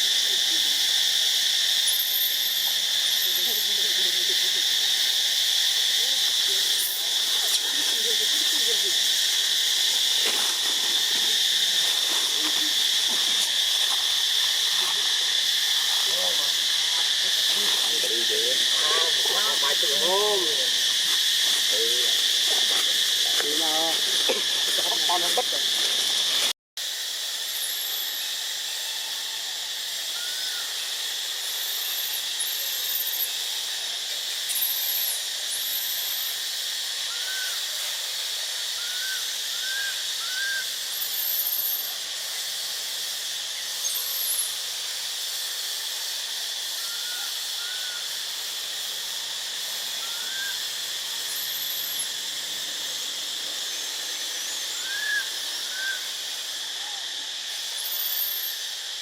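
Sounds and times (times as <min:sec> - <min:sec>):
insect drone: 0:00.0 - 0:59.0.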